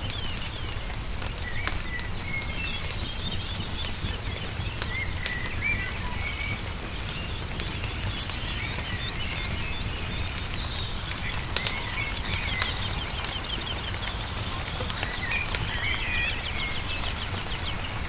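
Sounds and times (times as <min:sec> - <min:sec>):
small birds chirping: 0:00.0 - 0:18.0
wood fire crackling and popping: 0:00.0 - 0:18.0.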